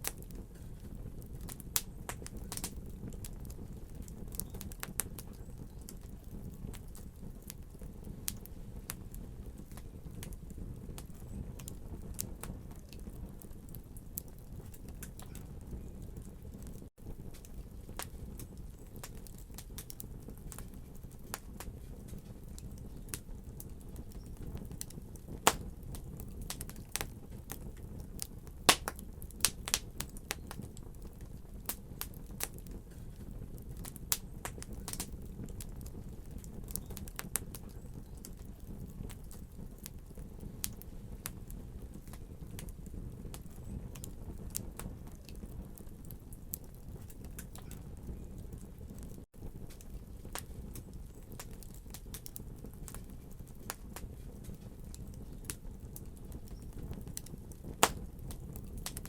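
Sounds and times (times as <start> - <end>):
fire crackling and popping: 0.0 - 59.0
fire flames rumbling: 0.0 - 59.0.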